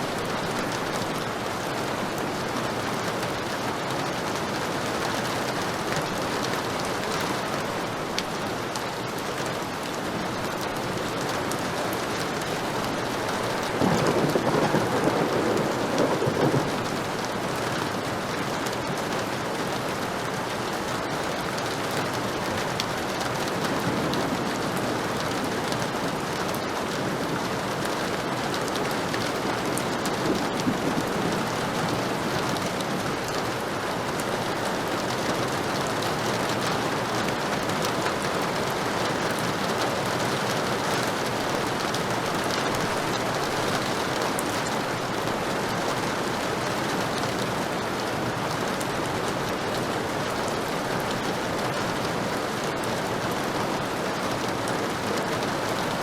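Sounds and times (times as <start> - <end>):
heavy rain falling: 0.0 - 56.0
thunder rumbling: 13.4 - 17.1, 29.4 - 33.0.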